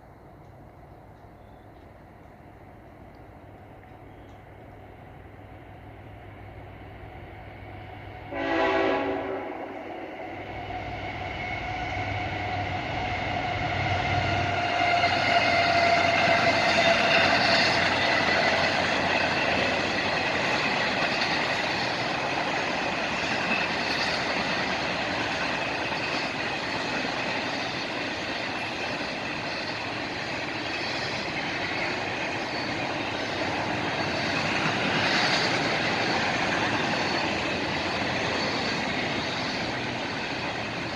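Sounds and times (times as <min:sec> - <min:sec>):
train wheels rumbling on rail: 0:00.0 - 0:40.9
train horn blast: 0:08.3 - 0:10.0.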